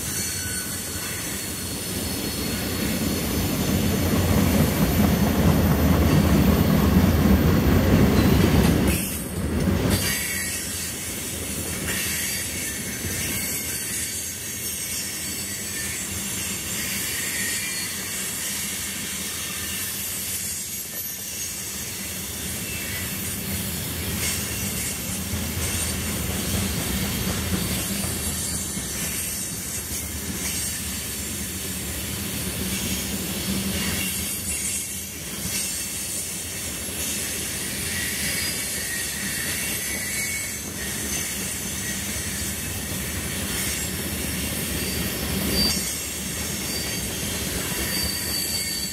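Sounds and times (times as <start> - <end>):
steel wheels on rails: 0.0 - 48.9.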